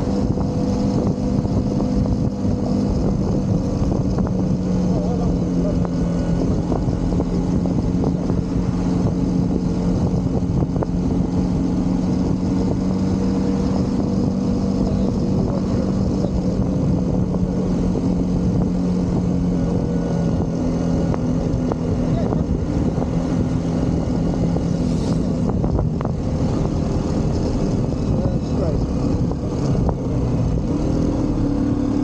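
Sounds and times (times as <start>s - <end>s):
motorcycle engine running: 0.0s - 32.0s
road noise: 0.0s - 32.0s
rushing wind: 0.0s - 32.0s.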